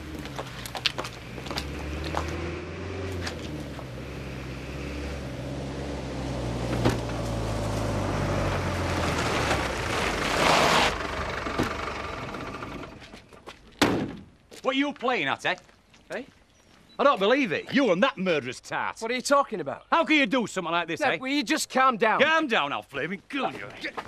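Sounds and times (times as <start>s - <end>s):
vehicle engine driving up: 0.0s - 13.2s.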